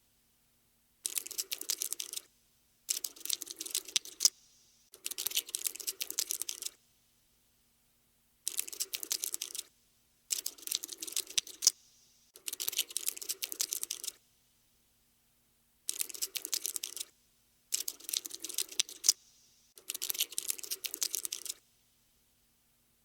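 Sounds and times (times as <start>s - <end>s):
cockroach scuttling clicks: 1.0s - 2.3s, 2.9s - 6.8s, 8.5s - 9.7s, 10.3s - 14.2s, 15.9s - 17.1s, 17.7s - 19.2s, 19.8s - 21.6s.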